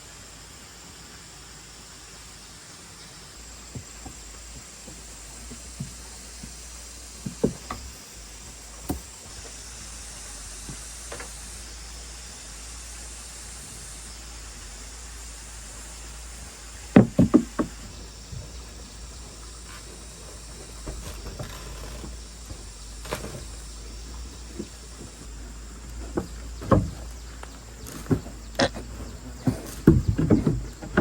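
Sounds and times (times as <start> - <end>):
steady low hiss: 0.0 - 31.0
sharp knocks: 3.7 - 9.3, 16.8 - 24.7.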